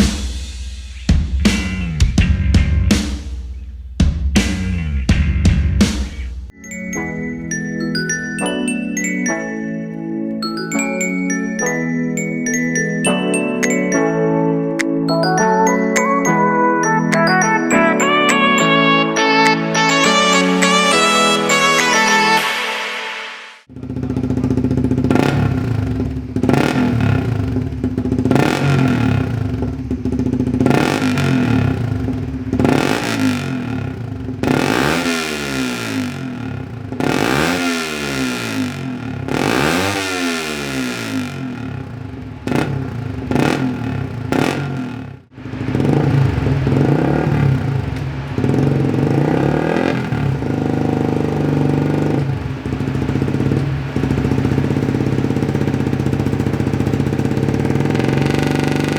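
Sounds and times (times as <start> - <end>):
motorcycle engine revving: 1.1 - 6.3, 23.6 - 58.9.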